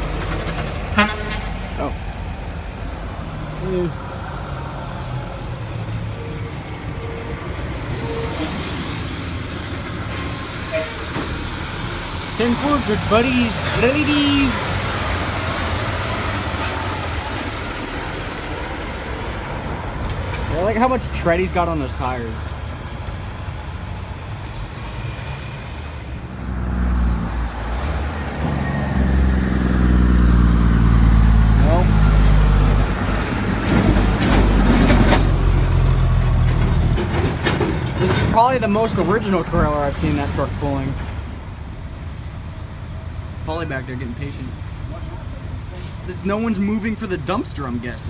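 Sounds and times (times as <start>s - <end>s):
diesel truck engine running: 0.0s - 48.0s
air hiss: 8.4s - 14.7s.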